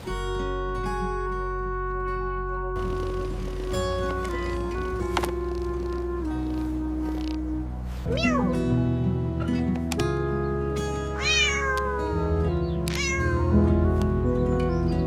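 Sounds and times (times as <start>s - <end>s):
background music: 0.0s - 15.0s
cat meowing: 8.1s - 8.6s, 11.2s - 12.3s, 12.9s - 13.6s.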